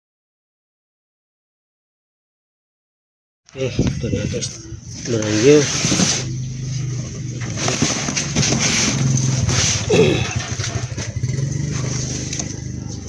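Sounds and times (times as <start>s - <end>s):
starter motor whirring: 5.0s - 13.0s.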